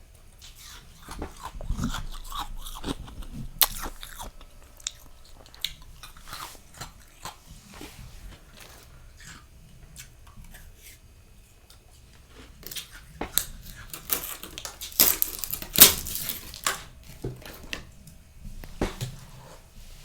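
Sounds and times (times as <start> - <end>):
frost crunching and crackling: 0.4 - 10.6, 12.5 - 17.9.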